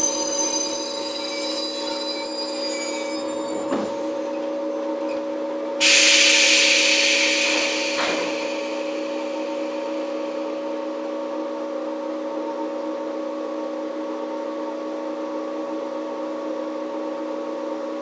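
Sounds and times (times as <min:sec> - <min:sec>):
electrical hum: 0:00.0 - 0:05.2
high whine: 0:00.0 - 0:05.2, 0:05.8 - 0:11.8
compressed air hiss: 0:05.8 - 0:10.0.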